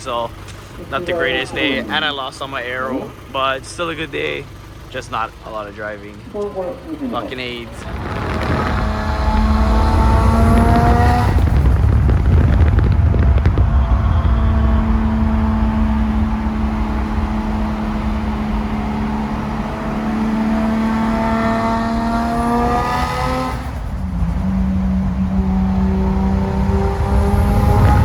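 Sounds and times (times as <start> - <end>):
car engine accelerating: 0.0 - 28.0
low road rumble: 0.0 - 28.0.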